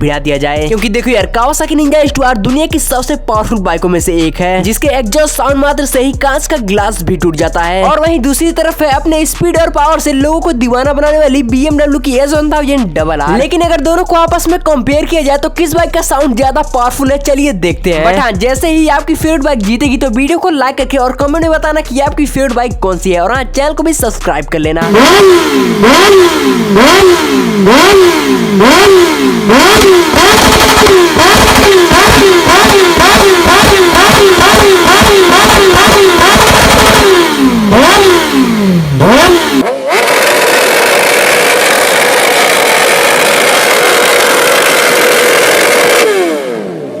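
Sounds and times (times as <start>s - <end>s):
motorcycle engine at high rpm: 0.0s - 47.0s
motorcycle engine revving: 0.0s - 47.0s.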